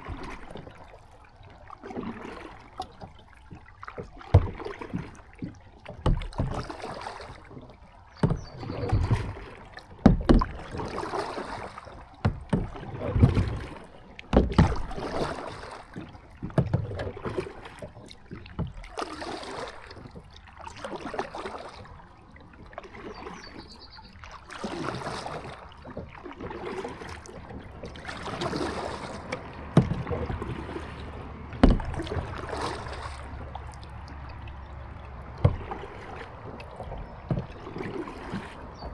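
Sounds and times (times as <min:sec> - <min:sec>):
paddle strokes splashing water: 0:00.0 - 0:38.9
sharp knocks: 0:29.8 - 0:30.2, 0:31.6 - 0:32.4.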